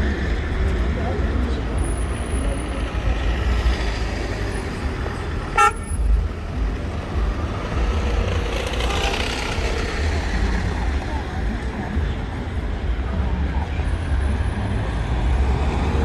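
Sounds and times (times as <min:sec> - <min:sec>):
street traffic: 0:00.0 - 0:16.0
car horn toot: 0:05.5 - 0:06.0.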